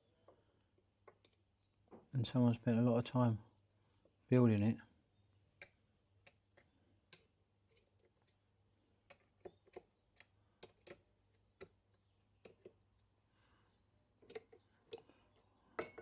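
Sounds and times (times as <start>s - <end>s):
light metal clicks and taps: 9.0s - 11.0s.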